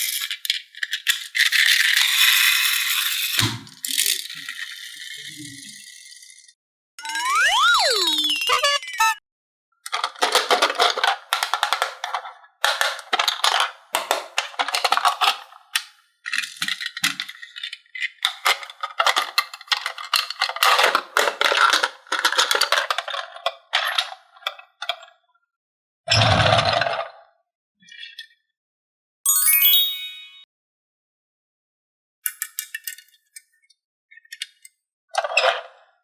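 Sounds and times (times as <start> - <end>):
toy pieces clattering: 0.0 - 6.4, 9.9 - 24.5.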